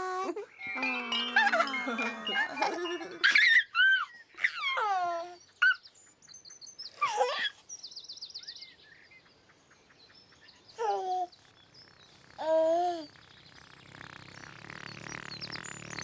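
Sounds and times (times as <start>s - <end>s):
birds chirping: 0.5s - 3.6s, 5.4s - 16.0s
high warbling bird trill: 0.5s - 4.0s, 11.4s - 16.0s.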